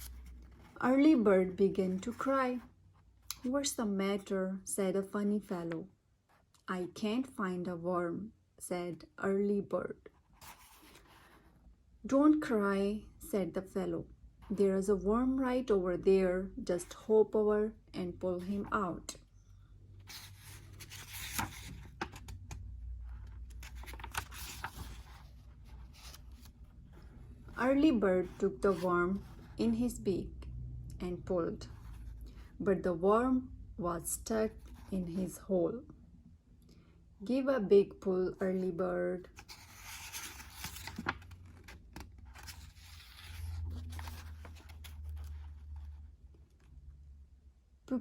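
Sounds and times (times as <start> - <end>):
book pages rustling and turning: 0.0 - 1.2, 10.2 - 11.5, 20.1 - 29.6, 39.3 - 46.8
low steady hum: 11.8 - 48.0.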